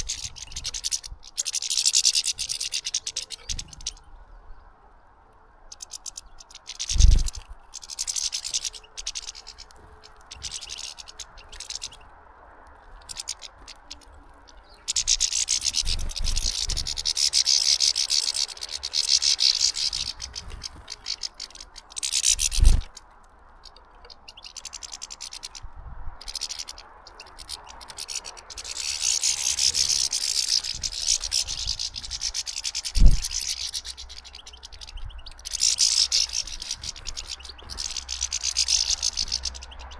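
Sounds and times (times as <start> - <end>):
finches twittering: 0.0 - 39.9.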